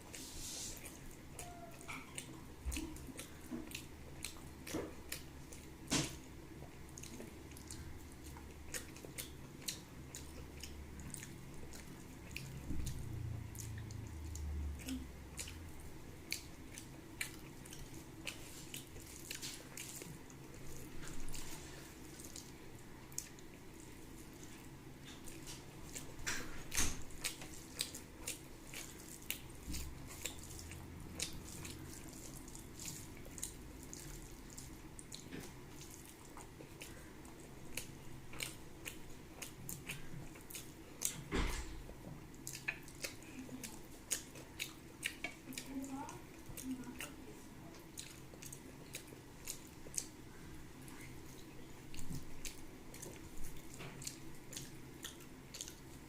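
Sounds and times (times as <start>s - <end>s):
person chewing food: 0.0s - 56.0s
lip smacks and mouth clicks: 42.3s - 45.7s.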